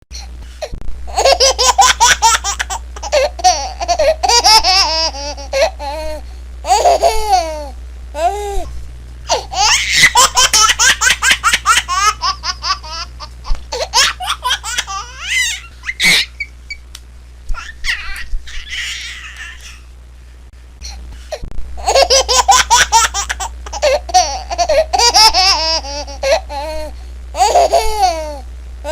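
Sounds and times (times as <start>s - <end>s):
baby giggling and laughing: 1.1s - 8.7s, 9.3s - 16.5s, 17.5s - 19.9s, 21.8s - 28.9s
baby squealing: 9.5s - 10.5s, 13.8s - 16.8s, 17.5s - 19.8s.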